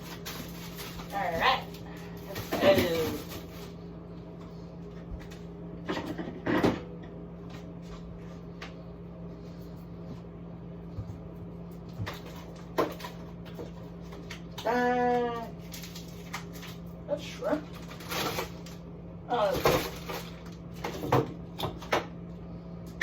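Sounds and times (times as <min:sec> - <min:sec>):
fridge-freezer hum: 0:00.0 - 0:23.0
frozen food packages knocking: 0:02.3 - 0:03.5.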